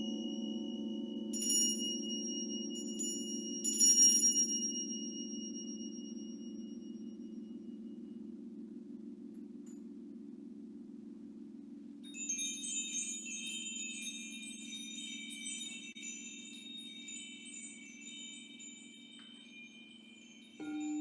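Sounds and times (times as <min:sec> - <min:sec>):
wind chime ringing: 0:00.0 - 0:07.1, 0:12.2 - 0:21.0
crystal singing bowl tone: 0:00.0 - 0:08.4, 0:12.0 - 0:21.0.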